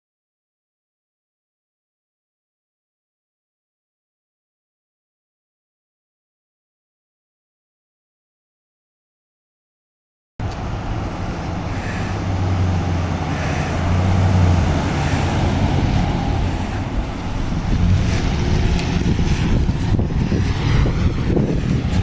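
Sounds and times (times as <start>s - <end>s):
diesel engine humming: 10.4s - 22.0s
traffic noise: 10.4s - 22.0s.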